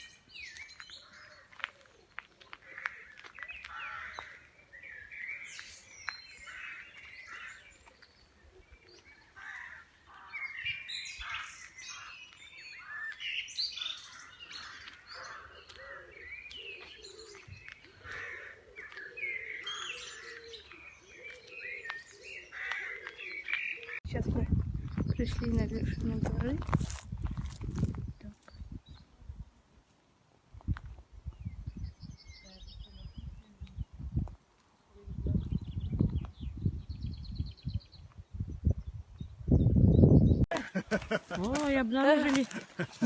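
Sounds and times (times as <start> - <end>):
lower bird calls: 0.0 - 24.2
birds chirping and trilling: 0.0 - 26.7, 31.2 - 43.0.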